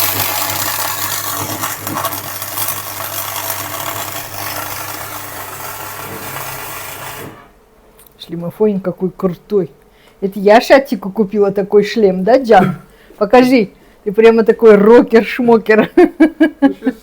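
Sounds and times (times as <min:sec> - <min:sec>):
welding arc crackling: 0:00.0 - 0:07.6
welding machine hum: 0:00.0 - 0:07.7.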